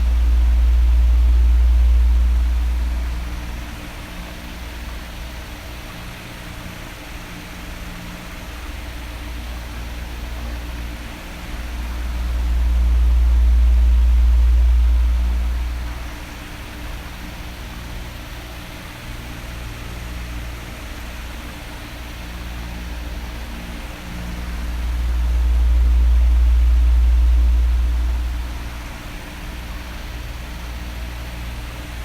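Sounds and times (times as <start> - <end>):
electric fan whooshing: 0.0 - 6.7, 8.8 - 18.2, 20.1 - 31.7
deep rumble of fan airflow: 0.0 - 32.0.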